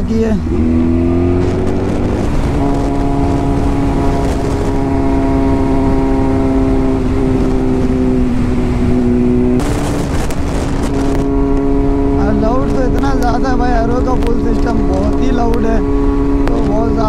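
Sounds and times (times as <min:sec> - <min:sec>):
rush of noise: 0:00.0 - 0:17.0
loud motorcycle exhaust: 0:00.4 - 0:17.0.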